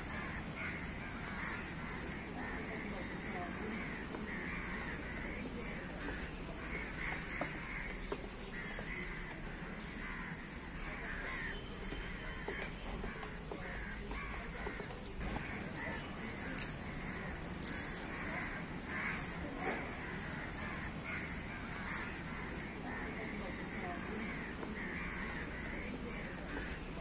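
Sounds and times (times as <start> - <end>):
birds calling: 12.3 - 27.0.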